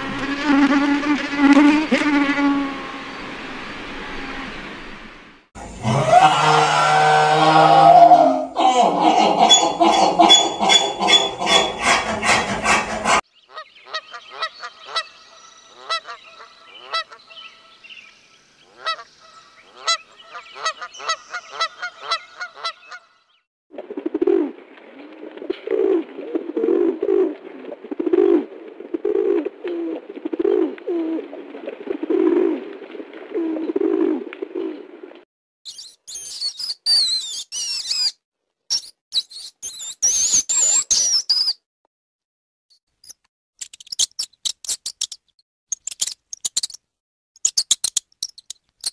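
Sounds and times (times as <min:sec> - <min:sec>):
mule braying: 0:05.7 - 0:13.2
geese honking and cackling: 0:09.0 - 0:15.1, 0:15.8 - 0:17.2, 0:18.8 - 0:23.1
pigeon cooing: 0:25.5 - 0:27.4.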